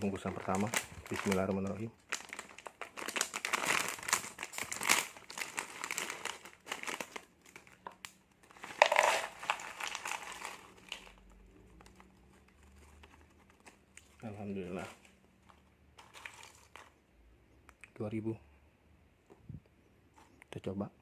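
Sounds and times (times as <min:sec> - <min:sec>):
plastic snack packet crinkling: 0:00.0 - 0:17.0.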